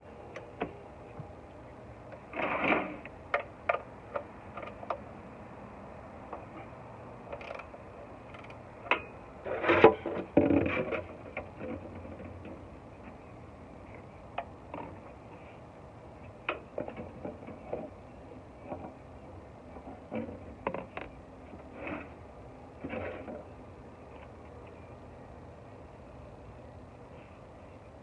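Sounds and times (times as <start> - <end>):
sharp clicks and knocks: 2.1 - 5.1.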